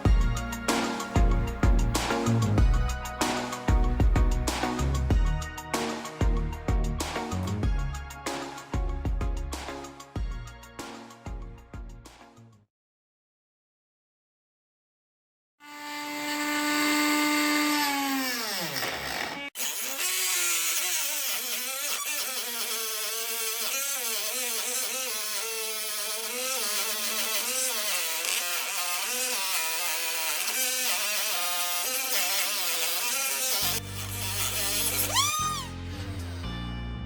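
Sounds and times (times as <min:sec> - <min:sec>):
electric power tool motor: 0:00.0 - 0:04.8, 0:15.6 - 0:36.5.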